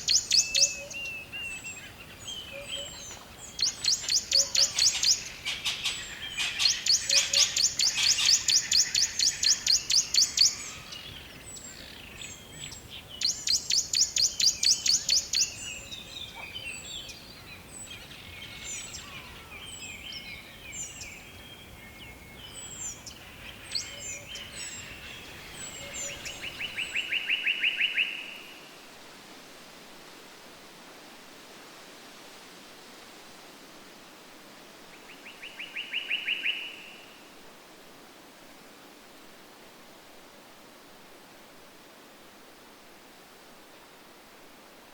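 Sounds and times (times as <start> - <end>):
songbirds trilling: 0.0 - 28.2.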